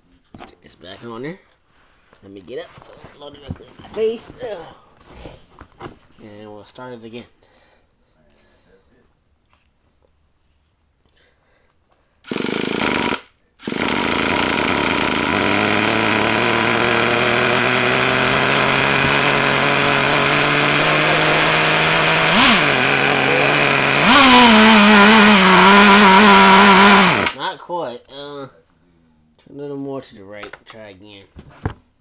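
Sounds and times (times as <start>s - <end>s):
nitro engine running: 12.3s - 27.4s.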